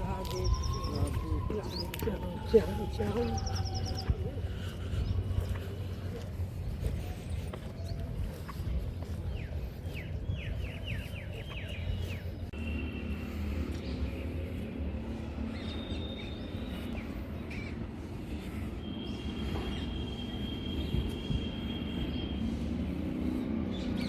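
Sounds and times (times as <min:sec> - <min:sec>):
birds chirping and whistling: 0:00.1 - 0:05.8.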